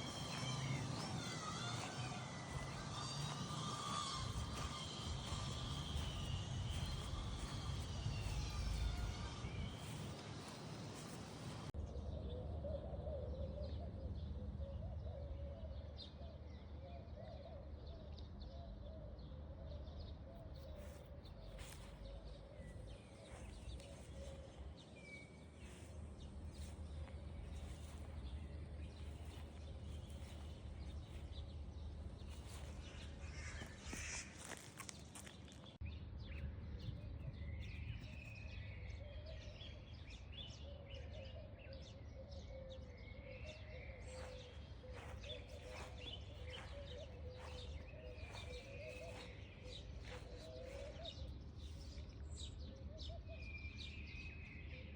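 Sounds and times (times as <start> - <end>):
bird chirps: 37.2 - 54.9.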